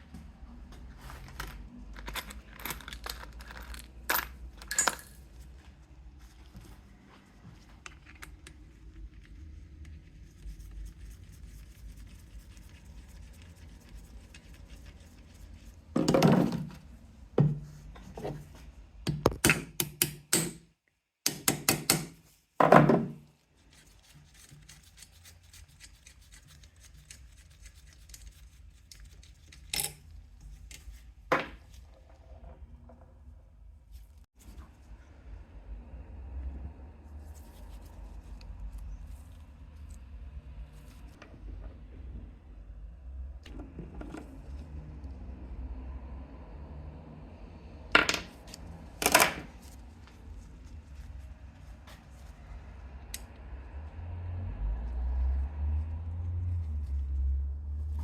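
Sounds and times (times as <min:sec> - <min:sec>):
tools knocking on workbench: 0:17.4 - 0:17.6, 0:21.3 - 0:23.2.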